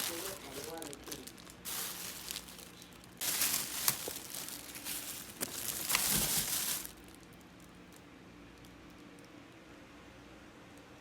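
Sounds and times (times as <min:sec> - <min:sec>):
packaging crinkling: 0:00.0 - 0:08.0.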